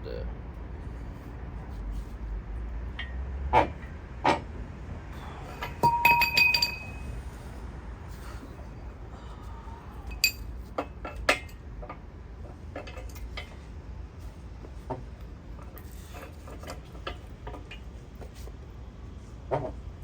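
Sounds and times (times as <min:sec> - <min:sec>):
metal tools clinking and knocking: 0:05.6 - 0:07.1, 0:10.1 - 0:11.6.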